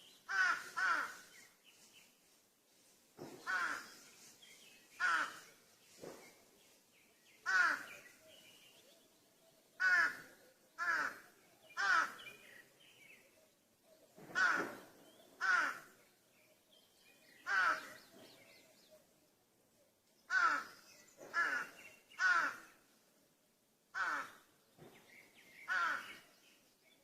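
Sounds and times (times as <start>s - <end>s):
crow cawing: 0.3s - 1.2s, 3.4s - 4.0s, 5.0s - 5.5s, 7.4s - 8.0s, 9.8s - 12.2s, 14.3s - 14.8s, 15.4s - 16.0s, 17.4s - 18.0s, 20.3s - 22.8s, 23.9s - 24.5s, 25.7s - 26.2s.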